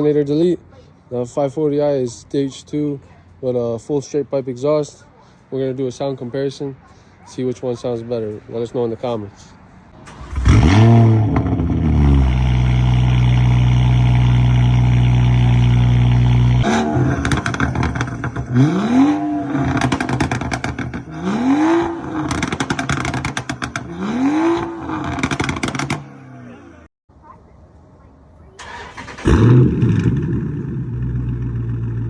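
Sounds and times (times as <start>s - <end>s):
car exhaust revving and popping: 10.1s - 26.8s, 29.2s - 32.0s.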